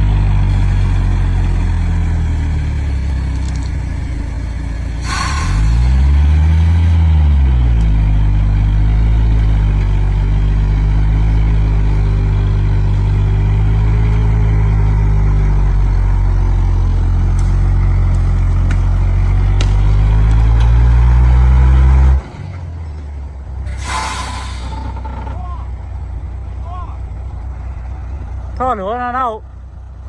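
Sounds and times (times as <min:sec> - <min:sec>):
heavy diesel engine working: 0:00.0 - 0:30.0
air hiss: 0:04.3 - 0:06.3, 0:23.7 - 0:24.9.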